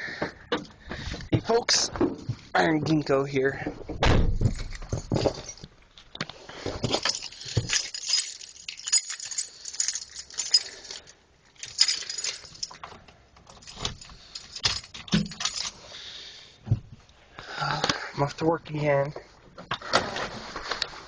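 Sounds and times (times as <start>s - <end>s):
keys jangling: 6.8s - 12.8s, 13.5s - 15.8s.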